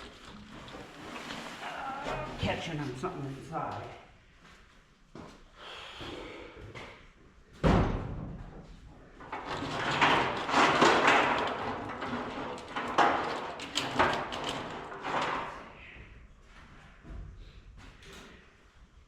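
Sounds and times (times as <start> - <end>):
wiring harness scraping and rubbing: 0.0 - 3.0.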